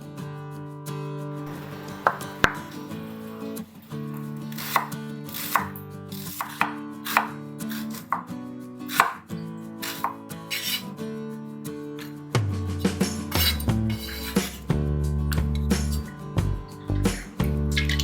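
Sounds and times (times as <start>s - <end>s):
soft background music: 1.4s - 18.0s
knife chopping on cutting board: 1.6s - 2.9s, 4.5s - 8.3s, 8.9s - 9.2s, 9.8s - 10.8s.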